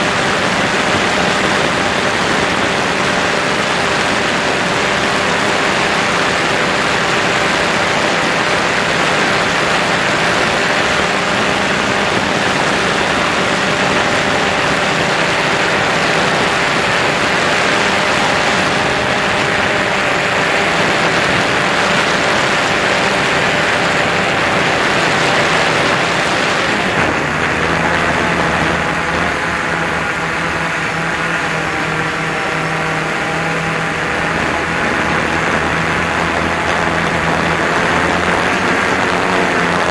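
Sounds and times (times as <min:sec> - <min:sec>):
drone propellers humming: 0:00.0 - 0:39.9
wind noise: 0:00.0 - 0:39.9.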